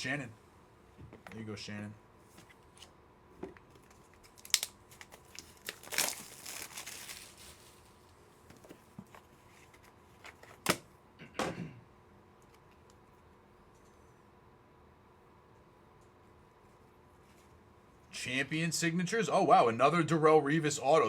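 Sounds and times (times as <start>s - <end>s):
plastic packaging crinkling and tearing: 3.8s - 8.0s.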